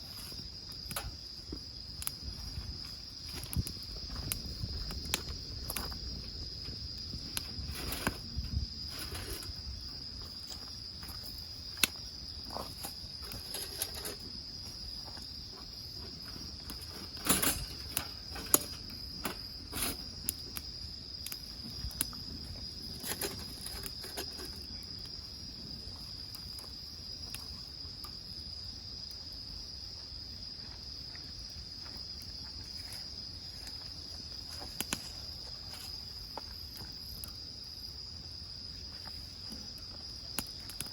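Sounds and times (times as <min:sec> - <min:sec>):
insects chirring: 0:00.0 - 0:40.9
wood fire crackling: 0:00.0 - 0:40.9.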